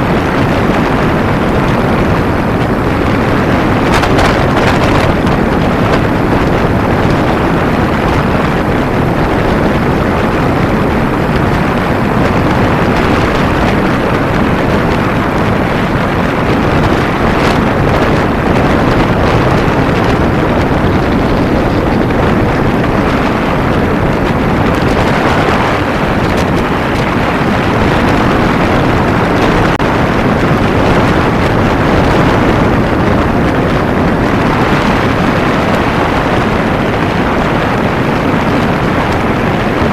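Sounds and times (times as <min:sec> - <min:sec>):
motorcycle engine: 0:00.0 - 0:39.9
road noise: 0:00.0 - 0:39.9
wind rush on microphone: 0:00.0 - 0:39.9.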